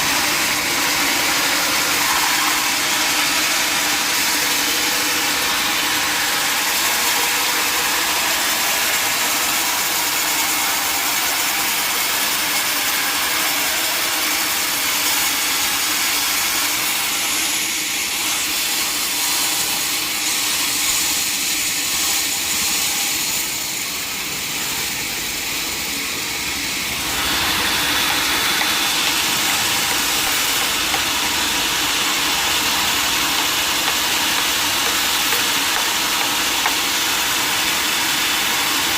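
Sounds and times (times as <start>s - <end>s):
sawmill saw hissing: 0.0s - 38.9s.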